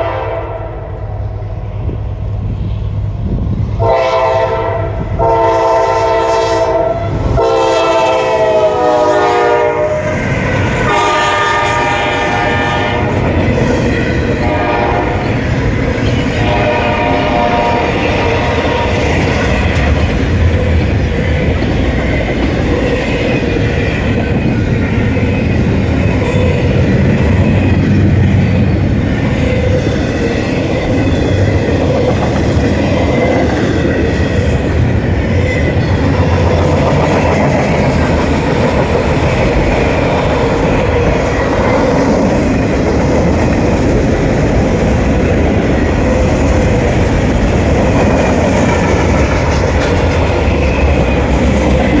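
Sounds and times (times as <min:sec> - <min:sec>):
train horn: 0:00.0 - 0:01.2, 0:03.8 - 0:10.2, 0:10.8 - 0:13.6, 0:14.3 - 0:19.8
train wheels rumbling on rails: 0:00.0 - 0:52.0
clickety-clack of train cars: 0:01.6 - 0:52.0.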